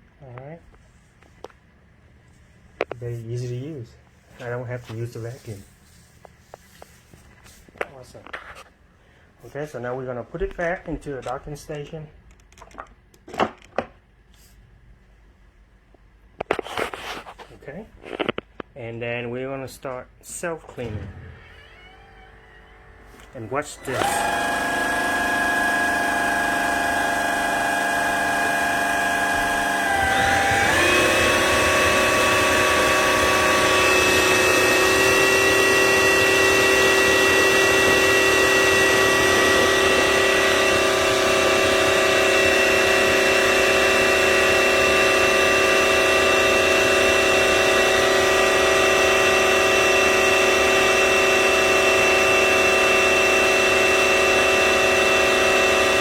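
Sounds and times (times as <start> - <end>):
vacuum mop motor whine: 20.8 - 56.0.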